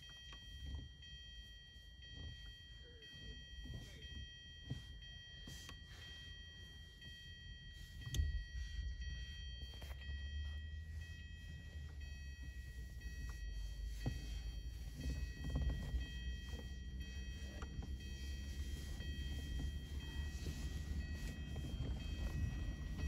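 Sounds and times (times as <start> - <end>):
high-pitched tone: 7.1 - 23.0
vehicle idling rumble: 7.8 - 23.0.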